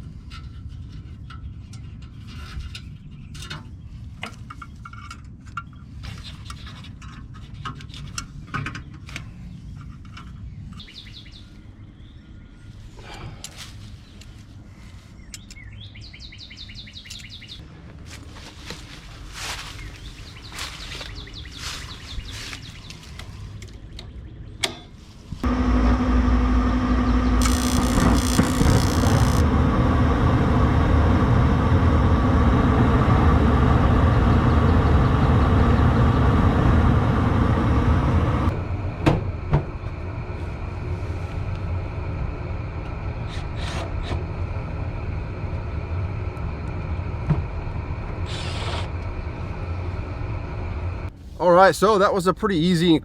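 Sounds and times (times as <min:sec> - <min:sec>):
machine running with low rumble: 0:25.4 - 0:51.3.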